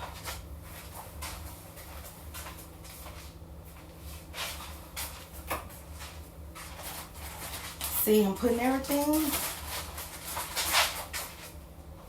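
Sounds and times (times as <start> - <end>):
packages rustling: 4.4 - 11.6.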